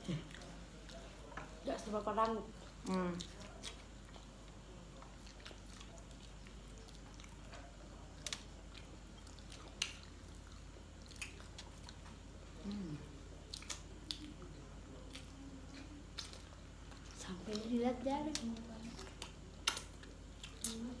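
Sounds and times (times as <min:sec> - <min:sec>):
people chewing: 0:00.0 - 0:21.0
wet lip smacks and clicks: 0:18.3 - 0:20.8.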